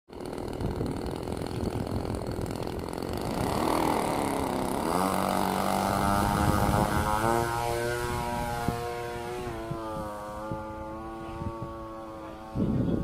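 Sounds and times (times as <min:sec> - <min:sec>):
model plane engine and propeller: 0:00.1 - 0:13.0.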